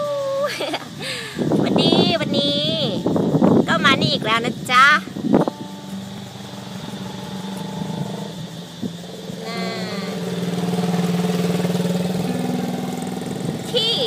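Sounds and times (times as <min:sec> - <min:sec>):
wavering high-pitched sound: 0:04.2 - 0:14.0
motorcycle engine idling: 0:05.2 - 0:14.0.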